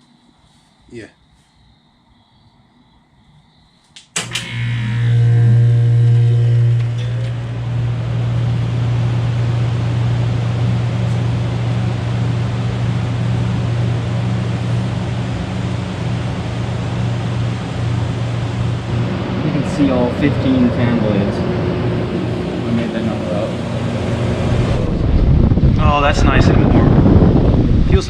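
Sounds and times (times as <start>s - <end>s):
heat pump switch click: 4.0s - 5.3s
compressor and fan humming: 4.0s - 28.0s
rush of air: 18.8s - 28.0s.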